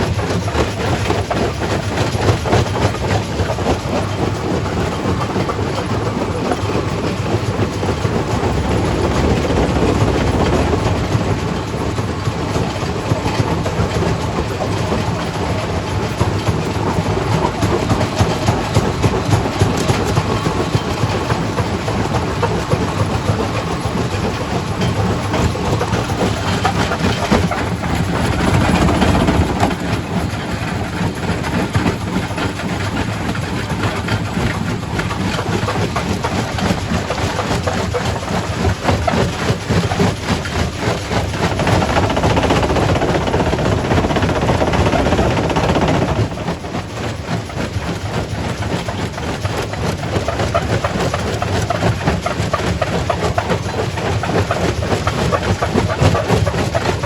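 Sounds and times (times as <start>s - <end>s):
machinery running: 0.0s - 57.0s.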